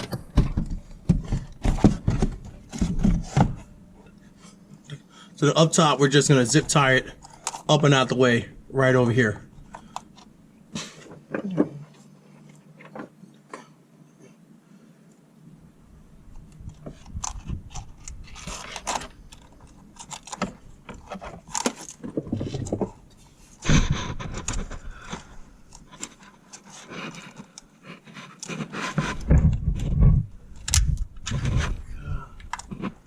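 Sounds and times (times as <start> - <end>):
dull thumps: 0.0 - 3.7, 23.6 - 25.3.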